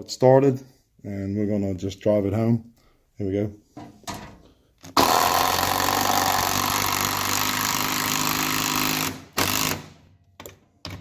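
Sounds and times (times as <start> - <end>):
impact driver hammering bolt into wood: 5.0 - 11.0.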